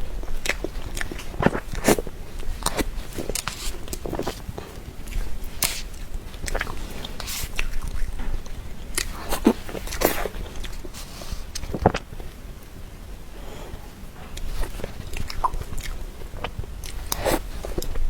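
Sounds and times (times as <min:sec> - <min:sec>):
chewing soft dessert: 0:00.0 - 0:18.0
lip smacks: 0:00.4 - 0:12.1, 0:14.4 - 0:18.0
wet mouth clicks: 0:15.2 - 0:18.0.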